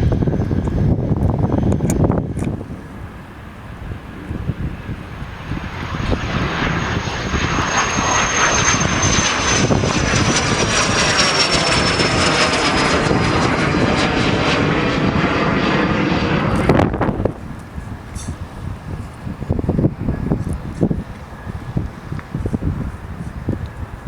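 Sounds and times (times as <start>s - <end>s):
jet aircraft passing: 0.0s - 24.0s.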